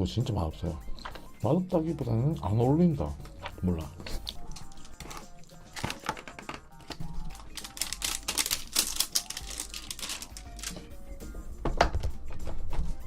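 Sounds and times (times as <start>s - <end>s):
crisp wet chewing: 3.2s - 10.8s.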